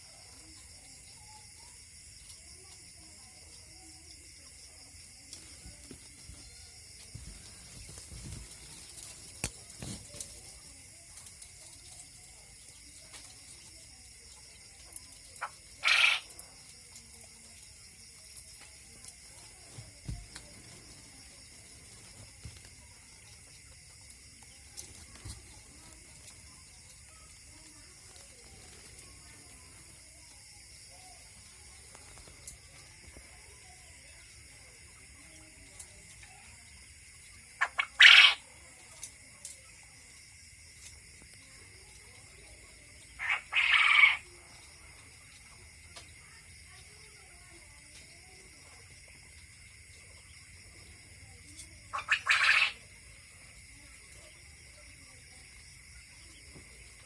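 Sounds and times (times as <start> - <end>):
quail calling: 15.4 - 16.3, 37.6 - 38.4, 43.2 - 44.2, 51.9 - 52.8.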